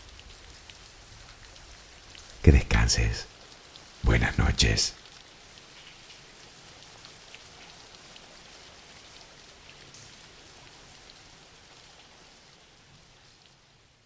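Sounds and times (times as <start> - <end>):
light rain patter: 0.0 - 14.0.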